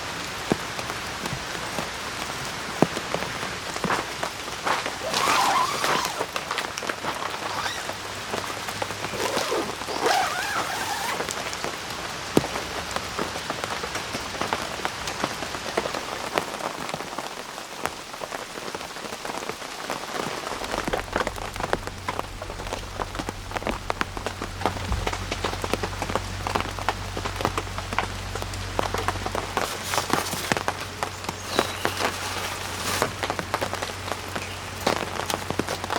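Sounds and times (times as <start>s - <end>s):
rain pattering: 0.0s - 35.9s
low steady hum: 20.4s - 34.8s.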